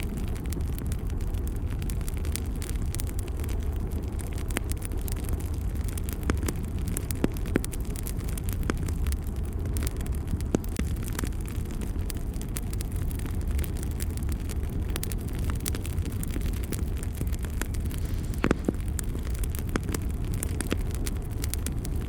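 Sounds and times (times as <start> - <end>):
fire crackling and popping: 0.0 - 22.0
fire rumbling: 0.0 - 22.0.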